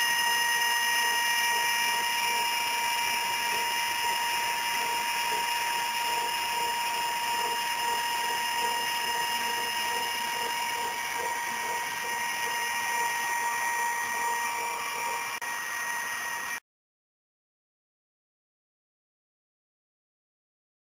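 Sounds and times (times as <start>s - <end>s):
cnc router high-pitched whine: 0.0s - 16.6s.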